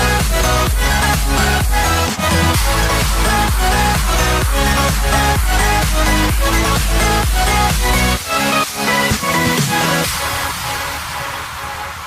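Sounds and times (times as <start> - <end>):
thumping kick drum: 0.0 - 8.0
electronic dance music: 0.0 - 12.0.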